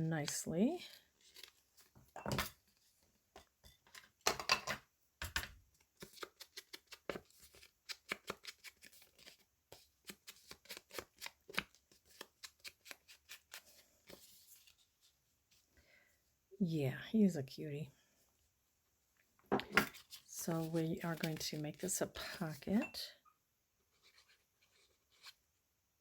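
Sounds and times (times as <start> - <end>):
paper rustling: 19.9 - 22.6.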